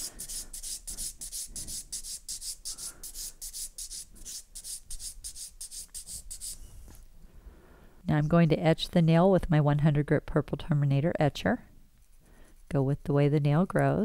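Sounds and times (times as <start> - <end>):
nail file rasping on a nail: 0.0 - 6.6.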